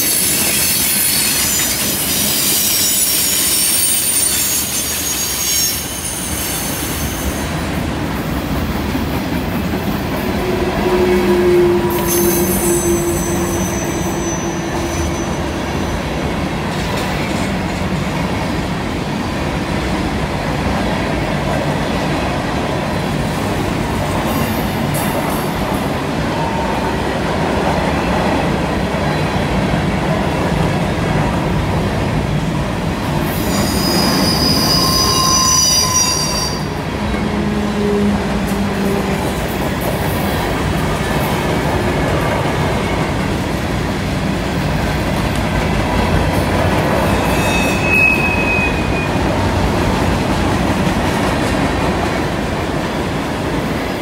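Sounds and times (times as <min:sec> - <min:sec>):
train wheels clattering on rail: 0:00.0 - 0:35.4, 0:36.6 - 0:54.0
wheel flanges squealing: 0:33.4 - 0:37.0, 0:47.1 - 0:49.2.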